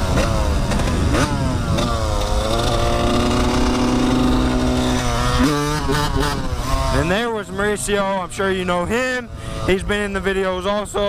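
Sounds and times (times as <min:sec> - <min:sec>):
dirt bike engine: 0:00.0 - 0:11.0.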